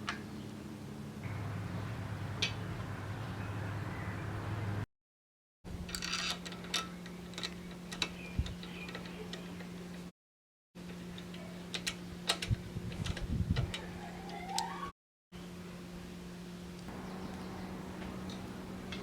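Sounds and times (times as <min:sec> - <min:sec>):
clicks of bicycle parts and tools: 0:05.9 - 0:10.0, 0:10.9 - 0:13.8
steady low hum: 0:15.4 - 0:19.0.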